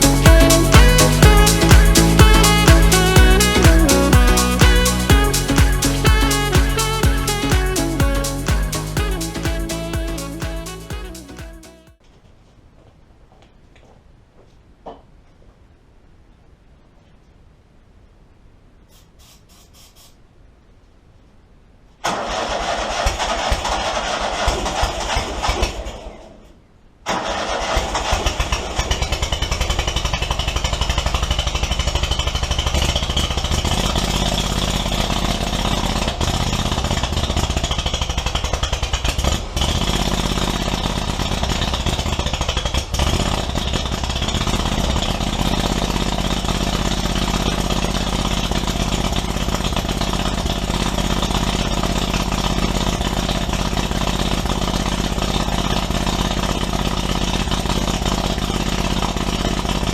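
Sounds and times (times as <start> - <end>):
mower engine running: 0.0 - 10.8, 27.2 - 59.9.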